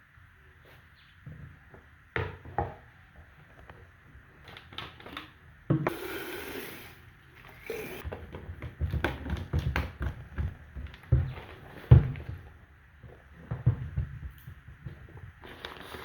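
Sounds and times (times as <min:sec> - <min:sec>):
objects knocking and clattering: 0:08.0 - 0:15.7.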